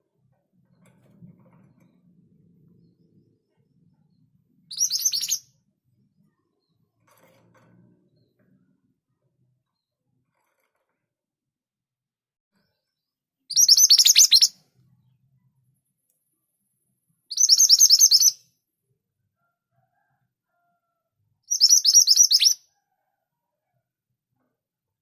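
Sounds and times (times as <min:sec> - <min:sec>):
bird high-pitched chirps: 0:04.7 - 0:05.4, 0:13.5 - 0:14.6, 0:17.3 - 0:18.4, 0:21.5 - 0:22.6.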